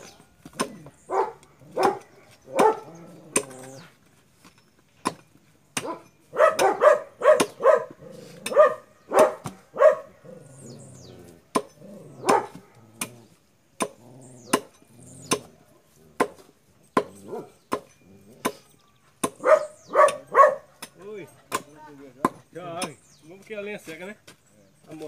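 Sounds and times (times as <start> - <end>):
dog barking: 1.1 - 2.9, 5.8 - 10.3, 12.2 - 12.8, 17.2 - 17.6, 19.4 - 20.9.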